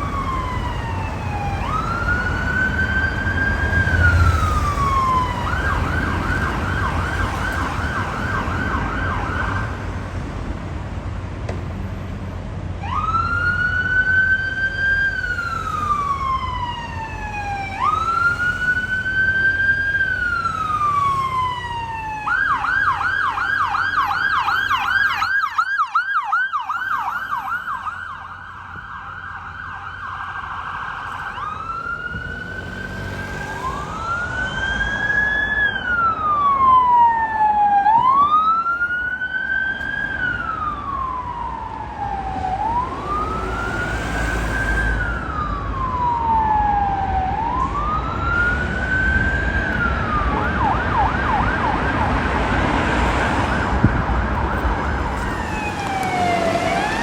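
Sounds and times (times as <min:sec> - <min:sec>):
emergency vehicle siren: 0:00.0 - 0:10.7, 0:12.7 - 0:57.0
road and engine rumble: 0:00.0 - 0:57.0.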